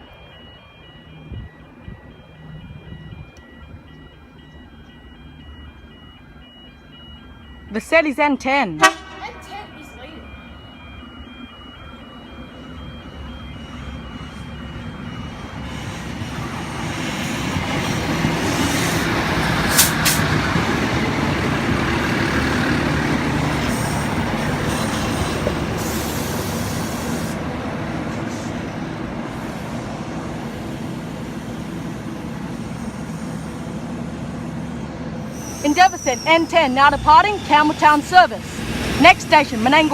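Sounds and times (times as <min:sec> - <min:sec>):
short warning beeps: 0:00.0 - 0:16.0, 0:35.4 - 0:39.9
diesel train engines: 0:00.0 - 0:39.9.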